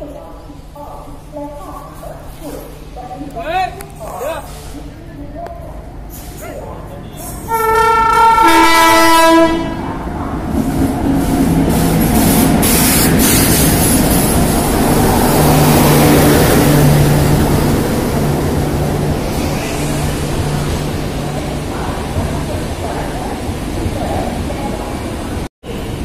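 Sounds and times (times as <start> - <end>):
train coaches rumbling past: 0.0 - 26.0
locomotive horn: 7.4 - 9.9.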